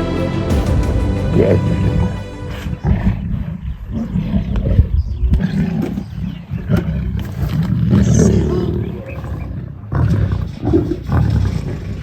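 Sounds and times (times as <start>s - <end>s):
lions growling: 2.8s - 12.0s.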